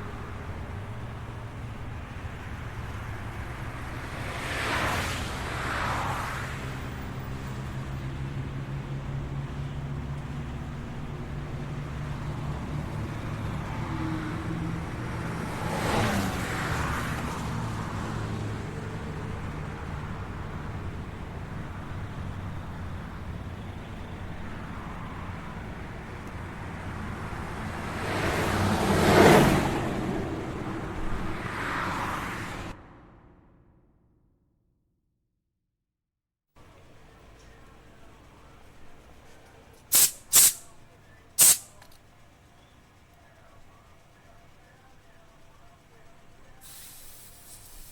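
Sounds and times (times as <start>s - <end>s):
traffic rumble: 0.0s - 34.0s, 36.6s - 47.9s
vehicles passing by: 0.0s - 34.2s, 36.6s - 47.9s.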